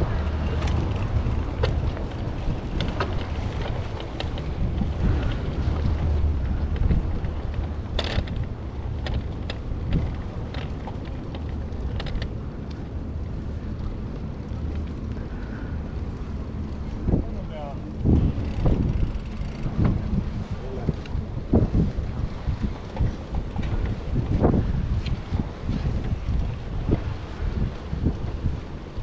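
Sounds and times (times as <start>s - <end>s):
light clicks and rattles: 0.0s - 21.9s
wind buffeting microphone: 0.0s - 29.0s.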